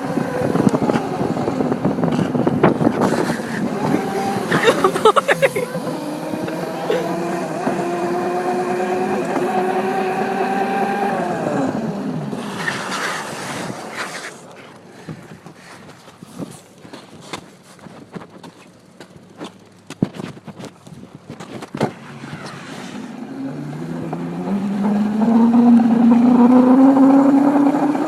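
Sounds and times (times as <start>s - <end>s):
mini bike engine revving: 0.0s - 14.5s, 21.8s - 28.0s.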